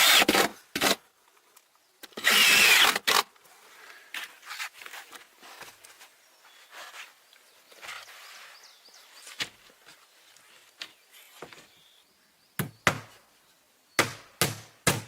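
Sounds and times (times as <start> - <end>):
rustling: 3.4 - 11.8.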